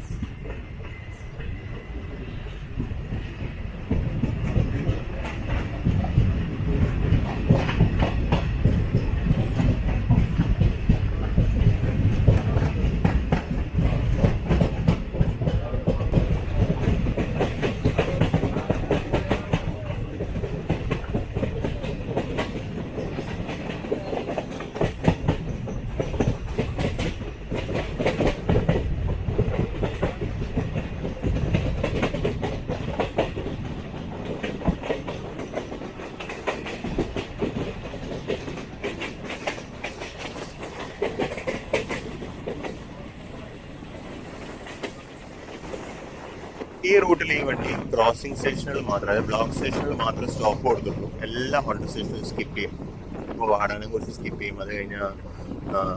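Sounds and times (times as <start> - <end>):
low train running rumble: 0.0 - 55.9
train wheels clattering over rail joints: 2.7 - 55.9.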